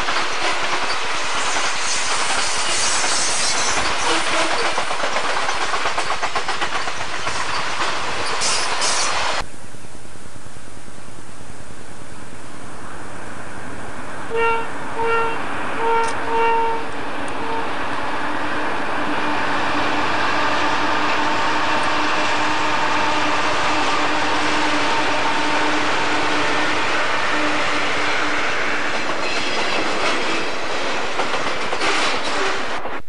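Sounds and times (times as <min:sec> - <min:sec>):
locomotive engine and rail noise: 0:00.0 - 0:33.0
steady whine of rolling cars: 0:09.2 - 0:32.8
locomotive horn blasts: 0:14.3 - 0:17.8.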